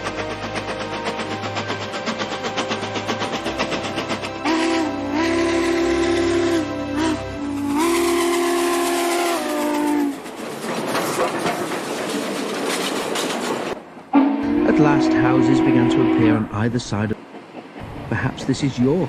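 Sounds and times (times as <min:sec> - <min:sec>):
steam locomotive whistle: 0:00.0 - 0:10.3, 0:14.1 - 0:16.6
rush of steam: 0:00.0 - 0:19.0.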